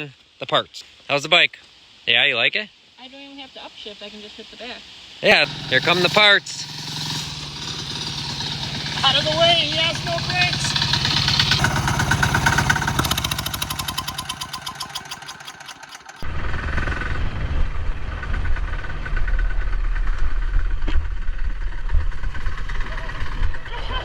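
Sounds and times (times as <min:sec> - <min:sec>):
mini bike engine running: 0:05.3 - 0:16.3, 0:20.9 - 0:24.0
low rumble: 0:16.2 - 0:24.0.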